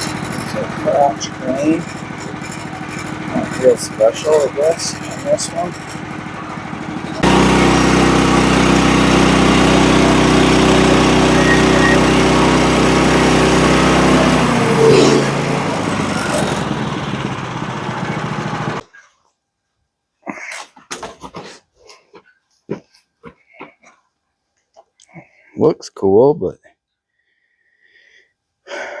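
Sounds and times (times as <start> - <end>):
small gasoline engine running: 0.0 - 18.8.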